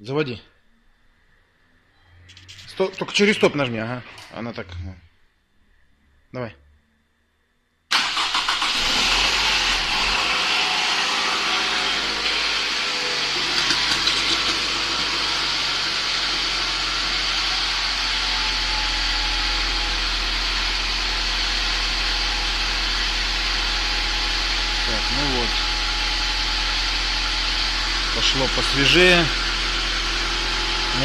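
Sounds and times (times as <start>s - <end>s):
car engine starting and idling: 7.9s - 31.0s.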